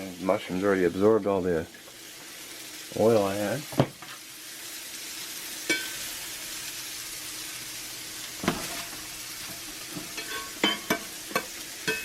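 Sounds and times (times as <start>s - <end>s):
mushrooms sizzling in a skillet: 0.0s - 12.0s
utensil clinking against a pan: 10.0s - 12.0s.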